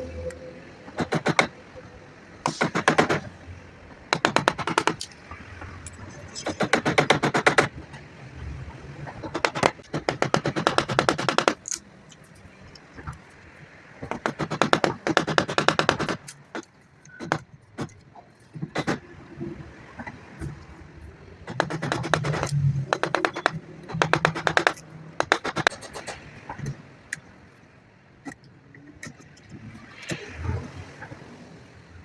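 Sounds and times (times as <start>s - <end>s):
tool rasping wood: 21.5s - 26.1s.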